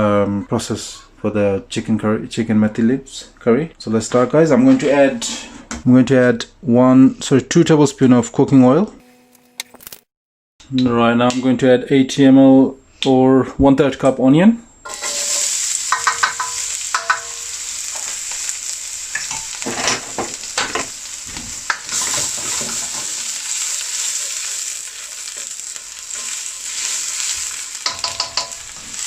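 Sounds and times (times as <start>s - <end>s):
onion sizzling in oil: 14.8s - 29.0s
stirring scrapes in pan: 14.9s - 29.0s.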